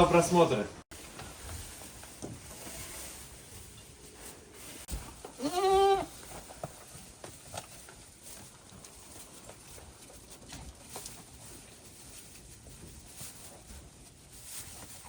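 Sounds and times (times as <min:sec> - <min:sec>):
goat bleating: 0:05.3 - 0:06.1.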